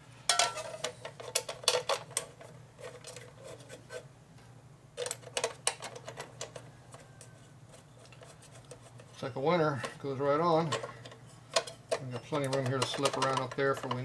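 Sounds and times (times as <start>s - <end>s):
bolts clinking against metal: 9.7s - 14.0s.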